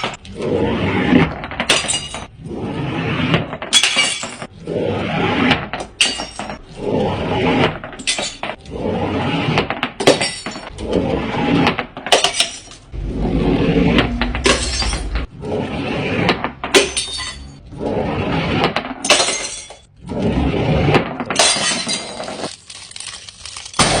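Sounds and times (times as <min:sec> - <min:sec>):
glass bottles smashing: 0:01.7 - 0:02.3, 0:03.7 - 0:04.5, 0:05.9 - 0:06.6, 0:08.0 - 0:08.6, 0:10.0 - 0:10.7, 0:12.1 - 0:12.9, 0:14.5 - 0:15.0, 0:16.7 - 0:17.6, 0:19.0 - 0:19.9, 0:21.3 - 0:24.0.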